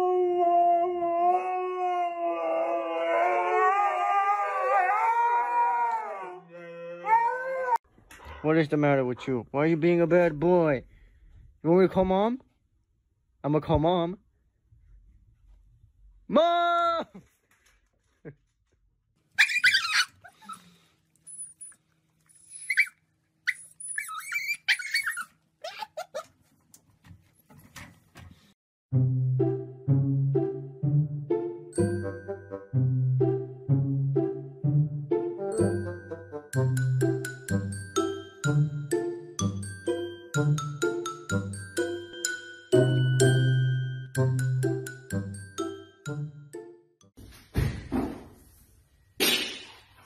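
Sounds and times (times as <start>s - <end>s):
dog howling steadily: 0.0s - 7.8s
higher wavering dog howl: 0.0s - 7.8s
puppy whining: 19.4s - 26.4s.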